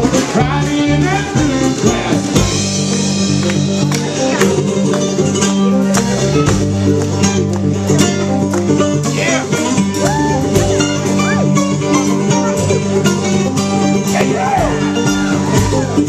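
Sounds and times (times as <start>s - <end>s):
plucked string picking: 0.0s - 16.0s
steady bass line: 0.0s - 16.0s.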